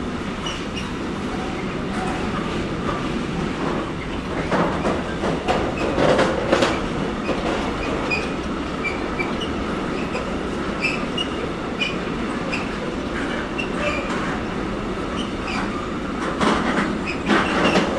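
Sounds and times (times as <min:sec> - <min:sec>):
train wheels rolling on rail: 0:00.0 - 0:17.9
high-pitched wheel squeaks: 0:07.6 - 0:14.4, 0:17.0 - 0:17.9.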